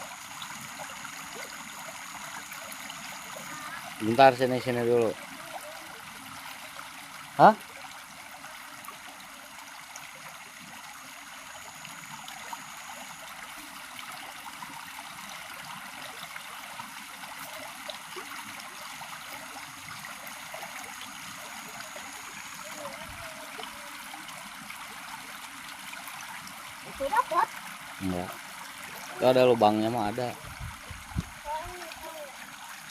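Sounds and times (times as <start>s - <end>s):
flowing river water: 0.0s - 32.9s
faint high tone: 21.6s - 24.0s.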